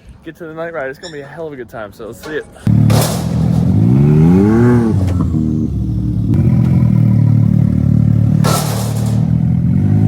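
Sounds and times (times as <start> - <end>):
vehicle engine revving: 2.7 - 10.0.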